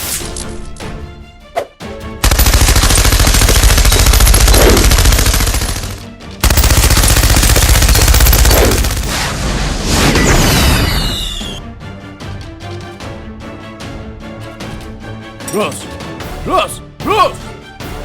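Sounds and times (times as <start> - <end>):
rapid automatic gunfire effect: 2.2 - 9.4.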